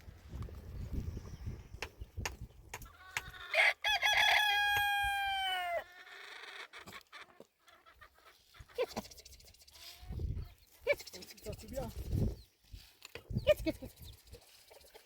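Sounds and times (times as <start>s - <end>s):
rooster crowing: 3.0s - 5.9s.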